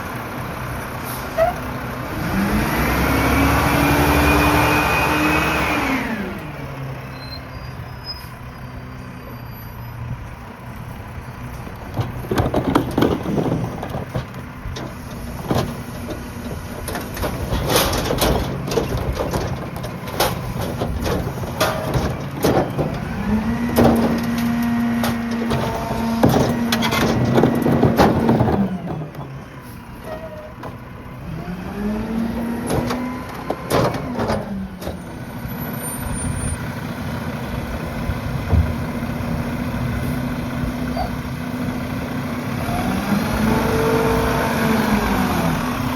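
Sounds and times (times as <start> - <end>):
garbage truck engine idling and revving: 0.0 - 45.9
metallic clanks and bangs: 11.9 - 31.0, 32.2 - 35.5.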